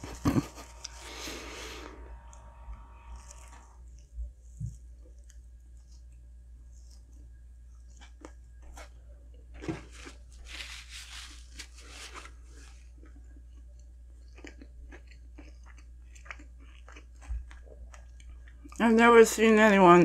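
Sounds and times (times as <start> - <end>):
chewing: 3.1 - 10.6, 12.0 - 18.8.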